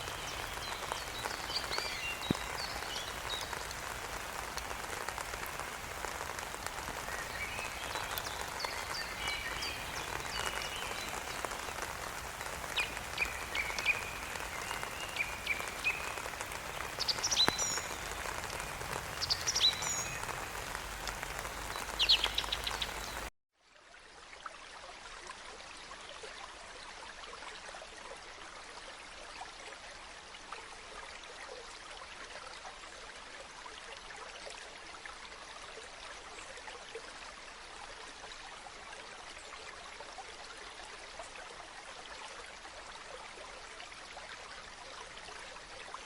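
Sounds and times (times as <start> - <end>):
rain pattering: 0.0 - 23.3.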